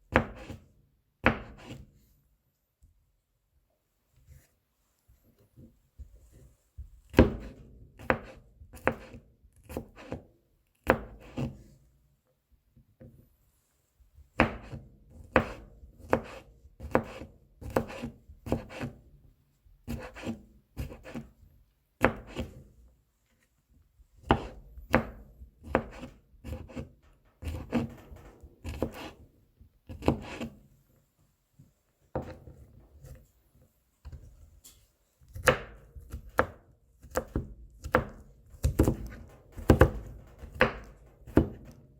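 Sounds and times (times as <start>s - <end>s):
knife chopping on cutting board: 0.1s - 0.6s, 1.2s - 1.8s, 7.1s - 10.2s, 10.8s - 11.6s, 14.4s - 19.0s, 19.9s - 21.3s, 22.0s - 22.6s, 24.2s - 27.9s, 28.6s - 29.2s, 29.9s - 30.6s, 35.3s - 41.8s.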